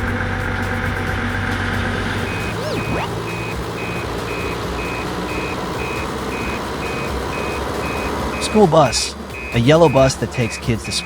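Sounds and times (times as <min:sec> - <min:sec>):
truck engine humming: 0:00.0 - 0:11.0
brief swooping tone: 0:02.2 - 0:03.5
reversing alarm beeping: 0:02.2 - 0:11.0.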